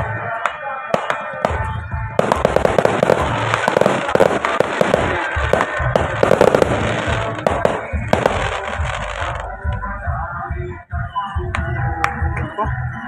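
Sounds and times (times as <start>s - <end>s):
fireworks popping and crackling: 0.0s - 9.8s
deep firework thumps: 1.0s - 9.9s.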